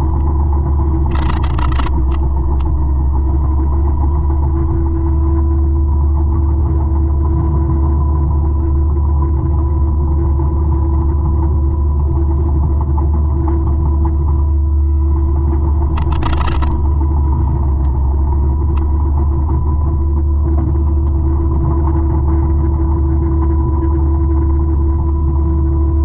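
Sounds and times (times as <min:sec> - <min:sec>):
forestry mulcher droning: 0:00.0 - 0:10.5.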